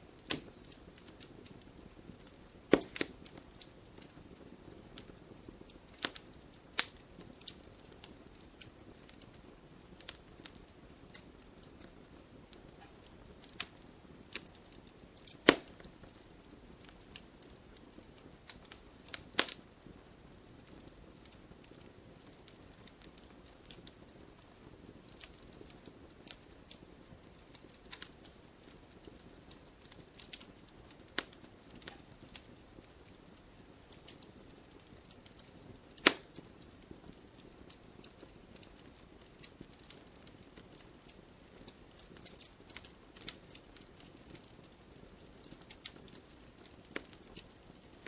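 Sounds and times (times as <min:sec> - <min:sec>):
campfire crackling and popping: 0:00.0 - 0:48.0
soft low fire hiss: 0:00.0 - 0:48.0.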